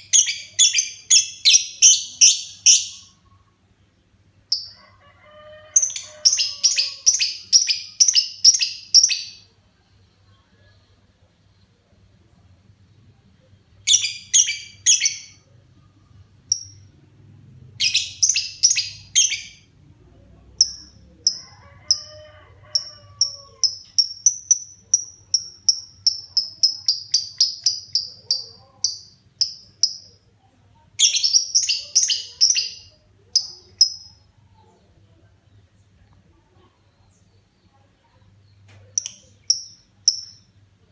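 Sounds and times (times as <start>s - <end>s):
bird chirping rapidly: 0.0s - 3.1s, 17.8s - 19.6s, 31.0s - 34.2s.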